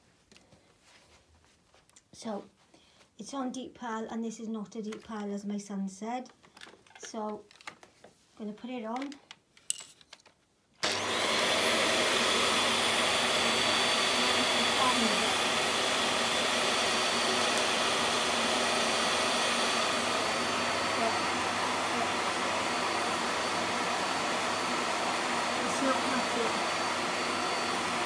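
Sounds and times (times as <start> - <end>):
vacuum cleaner running: 10.8 - 28.0.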